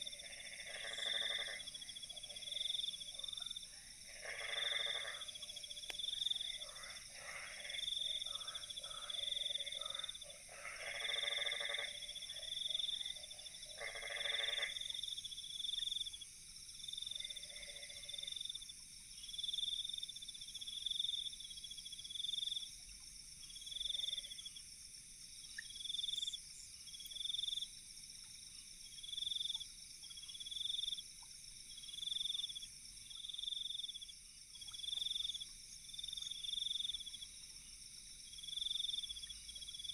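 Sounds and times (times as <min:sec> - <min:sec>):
loud frog croaks: 0:00.0 - 0:15.0, 0:17.2 - 0:18.5.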